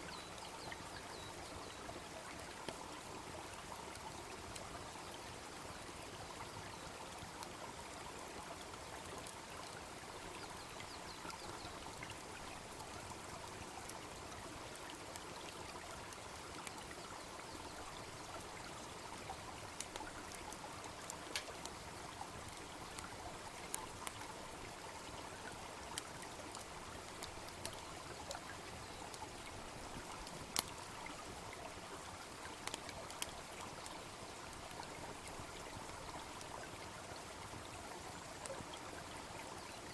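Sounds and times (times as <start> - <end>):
babbling brook: 0.0 - 39.9
bonfire crackling: 14.8 - 39.1.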